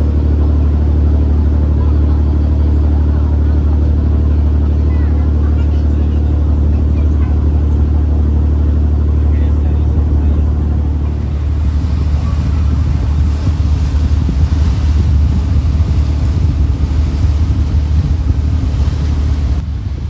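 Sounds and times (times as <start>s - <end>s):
ferry engine droning: 0.0s - 20.0s
wind buffeting microphone: 0.0s - 20.0s.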